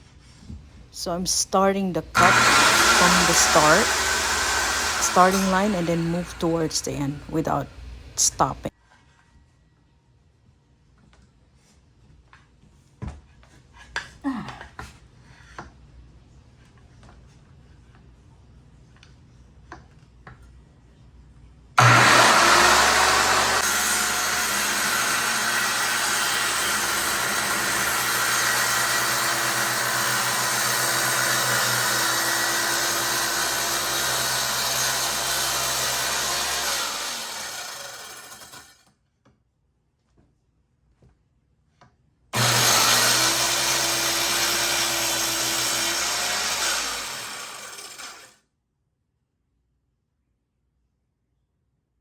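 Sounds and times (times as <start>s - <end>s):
circular saw cutting wood: 1.1s - 8.7s, 21.8s - 38.8s, 42.4s - 48.4s
saw blade spinning down: 2.2s - 8.6s, 21.8s - 38.8s, 42.4s - 48.3s.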